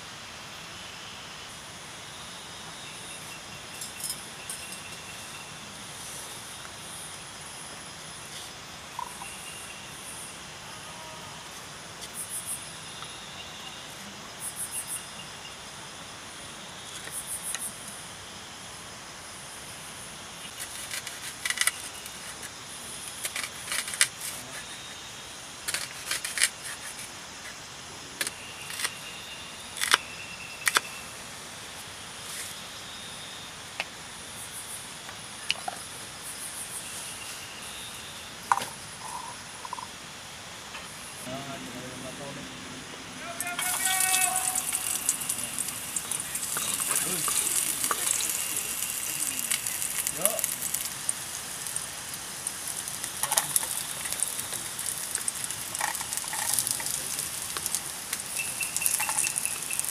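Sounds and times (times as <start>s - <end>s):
crickets and insects chirping: 0.0s - 59.9s.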